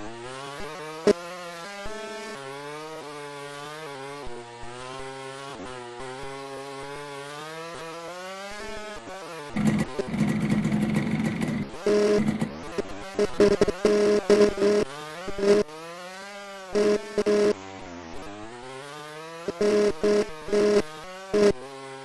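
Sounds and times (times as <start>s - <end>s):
loud rough engine: 9.5s - 15.6s, 16.8s - 17.5s, 19.5s - 21.6s
dirt bike engine revving: 9.5s - 15.8s, 16.5s - 17.6s, 19.3s - 22.0s.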